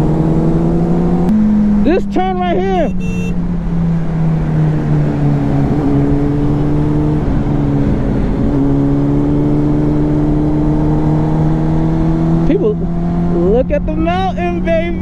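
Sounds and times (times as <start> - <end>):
motorcycle engine running: 0.0 - 9.4
wind rushing over microphone: 3.5 - 15.0.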